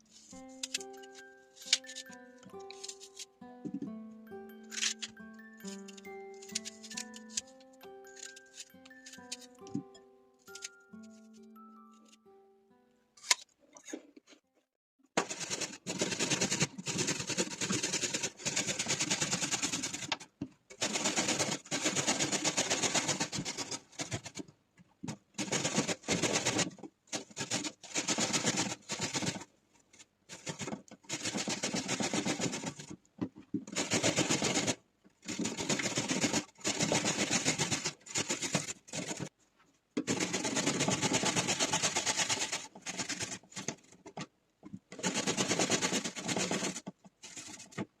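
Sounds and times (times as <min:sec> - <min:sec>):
small appliance rattling: 0:40.0 - 0:44.3, 0:44.9 - 0:47.9.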